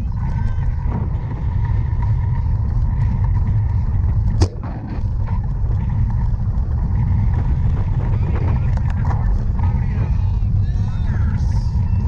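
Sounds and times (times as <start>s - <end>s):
bicycle riding noise: 0.0s - 12.0s
wind rumble: 0.0s - 12.0s.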